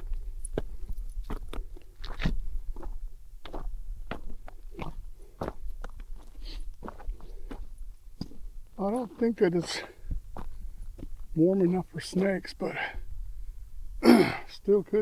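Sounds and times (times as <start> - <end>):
footsteps crunching on a trail: 0.0 - 13.9
wind rumbling on microphone: 13.0 - 14.0.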